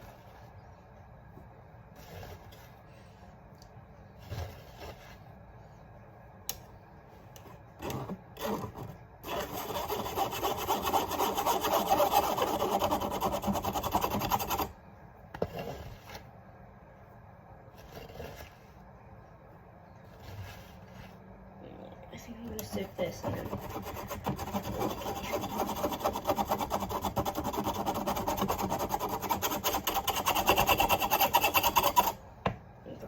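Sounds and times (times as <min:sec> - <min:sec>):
sieve rasping and scraping: 0:01.8 - 0:03.3, 0:04.1 - 0:05.6, 0:07.5 - 0:14.7, 0:15.4 - 0:16.4, 0:17.6 - 0:18.9, 0:20.0 - 0:21.4, 0:22.7 - 0:32.2.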